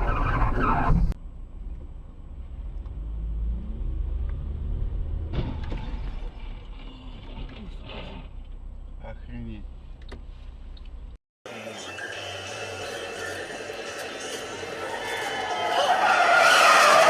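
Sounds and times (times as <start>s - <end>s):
car engine and road rumble: 0.0s - 11.2s.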